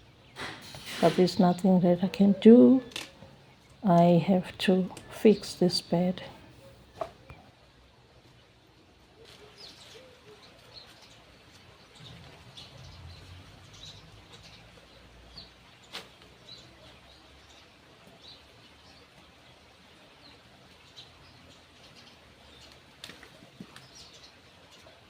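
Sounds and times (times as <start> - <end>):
small birds chirping: 9.2 - 25.0.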